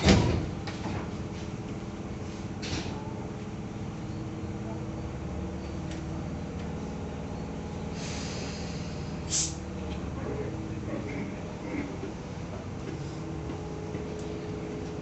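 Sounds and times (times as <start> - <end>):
train equipment hum: 0.0 - 15.0
short air hisses: 7.9 - 9.6.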